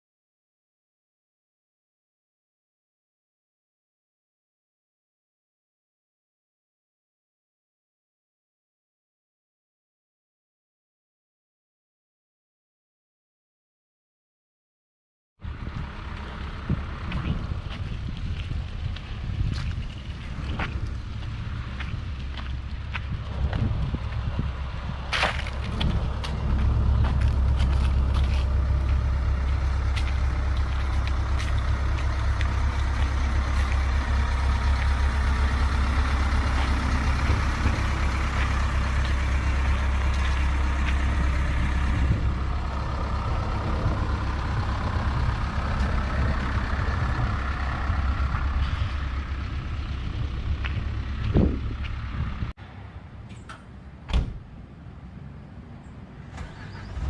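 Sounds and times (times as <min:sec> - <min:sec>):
excavator engine drone: 0:15.4 - 0:54.0.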